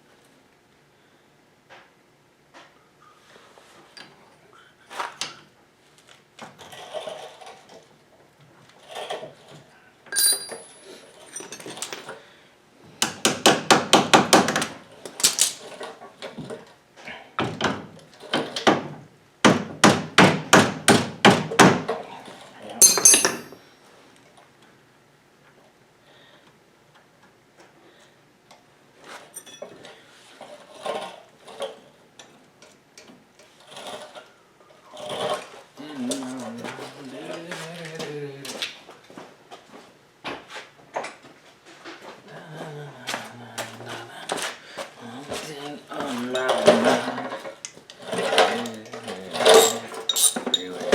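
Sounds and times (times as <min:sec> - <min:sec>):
ringing metallic clinks: 0:10.1 - 0:11.9, 0:22.8 - 0:23.6, 0:49.6 - 0:50.8
hammer striking metal: 0:10.2 - 0:10.9, 0:22.8 - 0:23.6.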